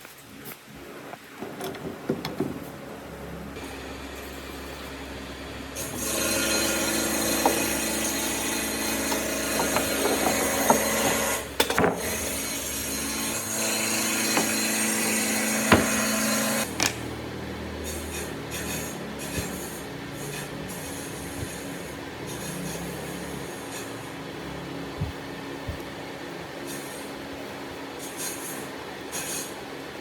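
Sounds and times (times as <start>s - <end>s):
power tool working wood: 3.6s - 17.0s
sharp knocks: 14.1s - 14.8s, 15.6s - 17.0s.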